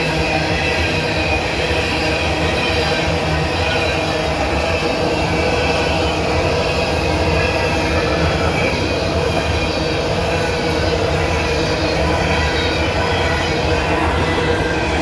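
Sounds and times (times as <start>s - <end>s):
freight train wheels rumbling on rails: 0.0s - 15.0s.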